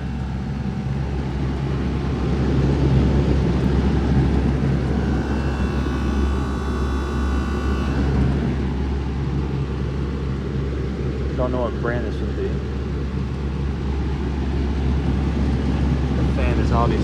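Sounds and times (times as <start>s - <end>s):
high whine: 0.0s - 11.6s
air conditioner hum and fan: 0.0s - 17.0s.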